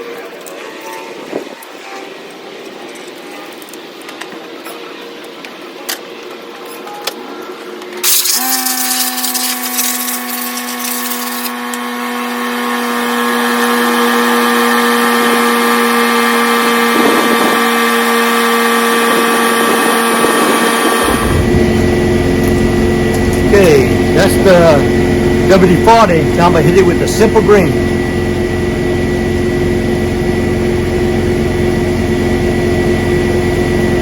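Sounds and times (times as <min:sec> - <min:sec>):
spray can hissing: 0:08.0 - 0:11.5
power tool motor whining: 0:08.0 - 0:34.0.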